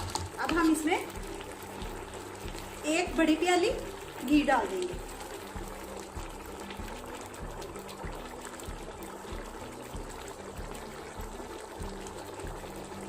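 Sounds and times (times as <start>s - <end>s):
pot bubbling and crackling: 0.0s - 13.0s.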